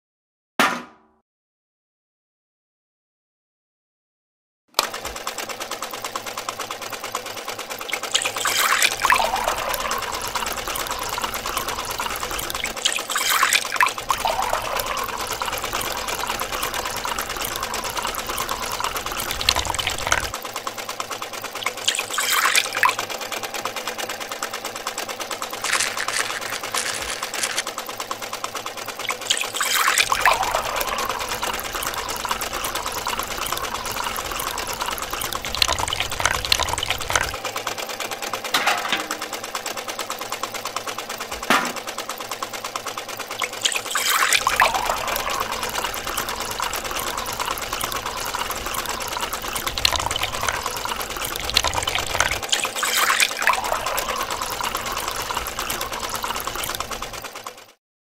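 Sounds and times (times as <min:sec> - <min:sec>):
small motor whirring: 0:04.8 - 0:37.6, 0:42.7 - 0:57.8
liquid trickling into bucket: 0:07.8 - 0:20.4, 0:21.5 - 0:23.4, 0:25.5 - 0:27.8, 0:29.0 - 0:37.4, 0:43.3 - 0:57.2.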